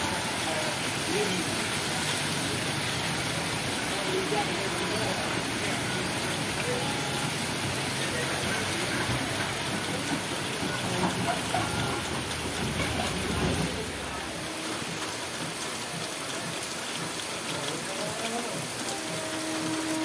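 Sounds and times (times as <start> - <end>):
heavy rain on wet ground: 0.0 - 20.0
vehicle rumbling on wet road: 0.0 - 20.0.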